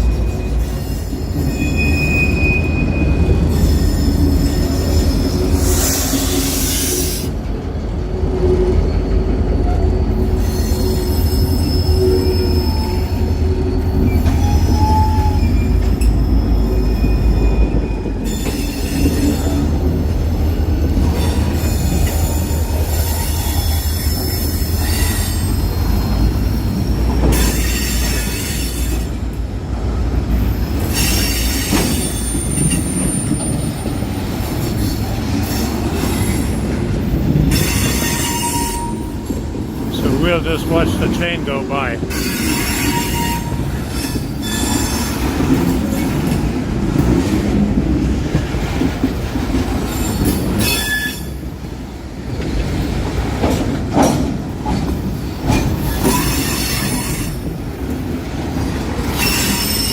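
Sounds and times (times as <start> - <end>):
high-pitched wheel squeals: 0.0 - 7.3, 8.9 - 19.5, 37.5 - 39.2, 49.9 - 51.4
freight train rumbling: 0.0 - 59.9.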